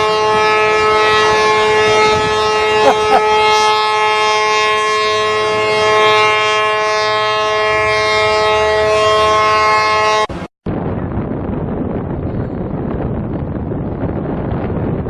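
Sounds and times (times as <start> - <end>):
ship's horn blast: 0.0 - 10.5.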